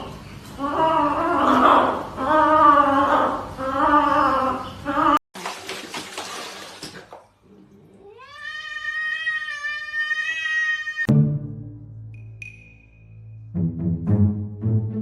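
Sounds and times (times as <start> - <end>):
cat meowing: 8.0 - 11.1.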